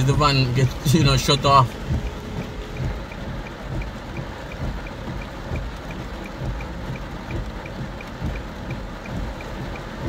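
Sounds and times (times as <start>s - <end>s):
faint steady ticking: 0.0s - 10.0s
heavy rain on car roof: 0.0s - 10.0s.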